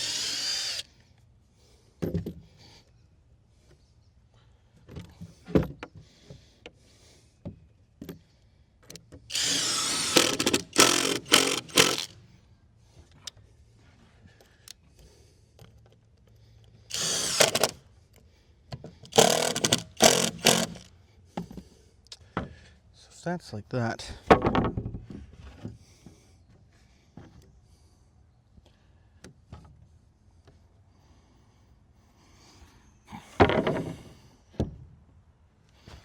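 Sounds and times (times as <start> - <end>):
power drill bursts: 0.0 - 0.9, 9.3 - 12.1, 16.9 - 17.8, 19.1 - 20.9
knocks of wood and tools: 2.0 - 2.4, 24.2 - 26.2, 33.3 - 34.9.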